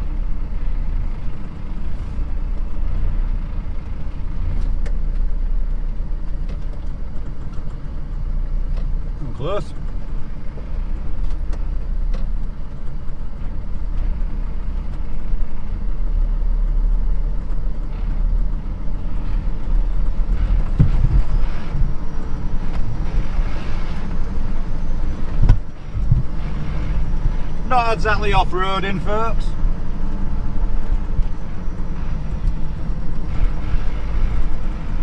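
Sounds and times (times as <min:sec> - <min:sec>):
diesel truck engine rumbling: 0:00.0 - 0:35.0
thumps: 0:20.4 - 0:22.0, 0:25.2 - 0:27.4.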